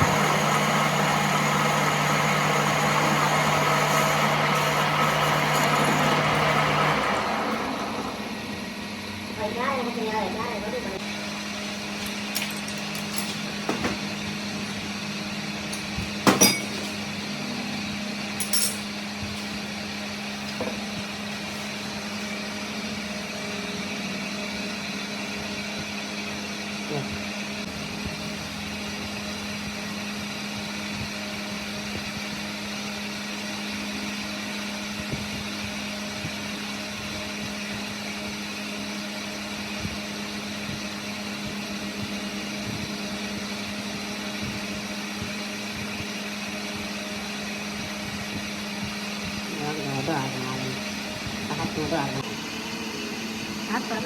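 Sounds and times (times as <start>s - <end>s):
workshop machine humming: 0.0s - 54.0s
metal knocks and clinks: 15.8s - 17.0s, 18.4s - 18.9s.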